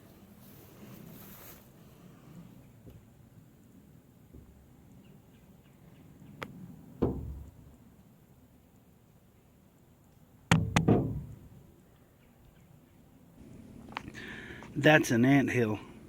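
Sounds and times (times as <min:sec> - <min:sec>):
sharp ringing knocks: 0:07.0 - 0:07.6, 0:10.5 - 0:11.6.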